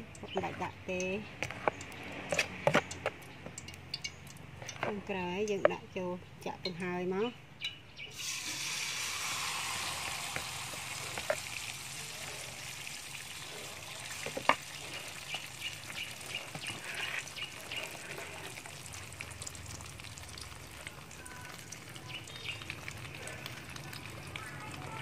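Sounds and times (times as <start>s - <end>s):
oil crackling and popping: 0.0s - 5.7s, 8.1s - 25.0s
batter sizzling in hot oil: 8.1s - 25.0s.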